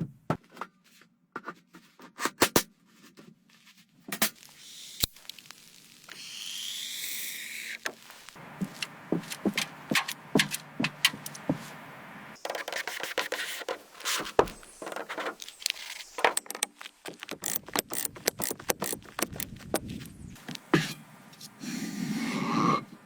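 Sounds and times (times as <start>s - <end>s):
hard objects scraping: 8.4s - 22.9s
hard objects clicking and knocking: 8.6s - 11.6s, 12.4s - 20.0s.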